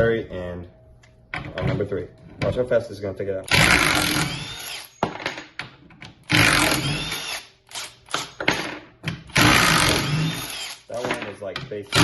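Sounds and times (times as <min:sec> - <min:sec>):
impact driver bursts: 0:06.3 - 0:08.4, 0:09.3 - 0:10.9.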